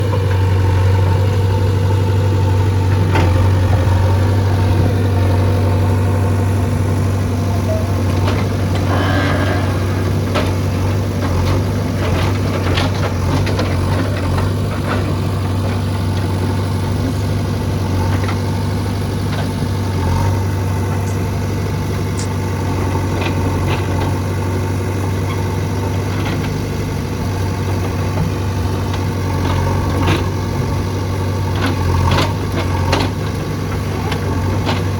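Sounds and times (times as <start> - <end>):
diesel engine running: 0.0 - 34.9
machine knocks and clanks: 6.4 - 16.4.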